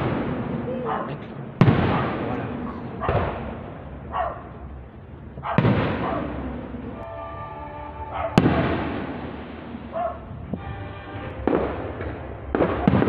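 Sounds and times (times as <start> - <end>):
echoing rumble: 0.0 - 13.0
fireworks bursting: 0.0 - 13.0.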